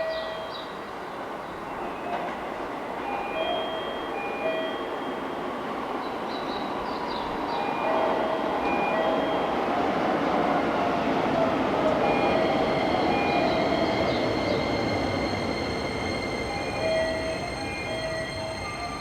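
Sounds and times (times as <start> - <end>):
train wheels squealing on rails: 1.4 - 19.0
high steady tones: 12.0 - 19.0.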